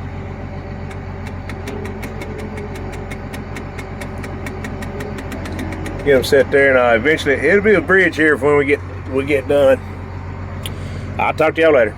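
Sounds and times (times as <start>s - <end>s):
engine idling: 0.0s - 11.9s
rapid regular ticking: 0.9s - 9.6s.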